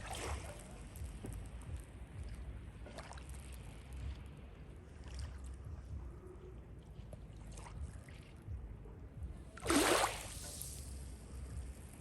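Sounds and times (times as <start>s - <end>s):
steady low rumble: 0.0s - 12.0s
water splash: 9.6s - 10.5s.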